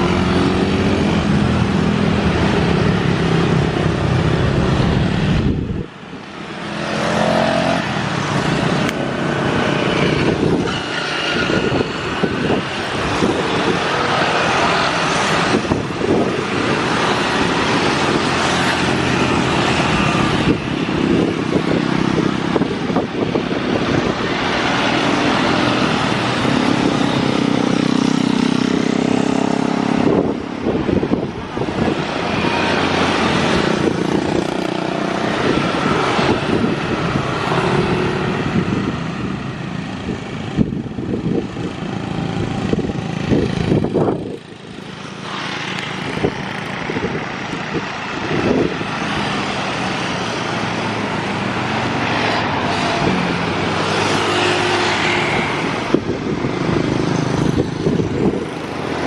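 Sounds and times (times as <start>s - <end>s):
cars passing: 0.0s - 59.0s
motorcycles passing: 0.0s - 59.0s.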